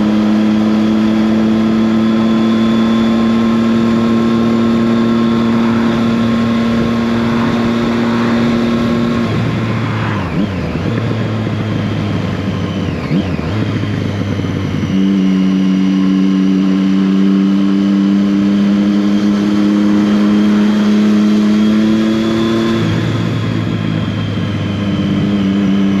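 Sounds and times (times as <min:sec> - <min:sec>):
motorcycle engine cruising: 0:00.0 - 0:26.0
wind rush: 0:05.0 - 0:11.4.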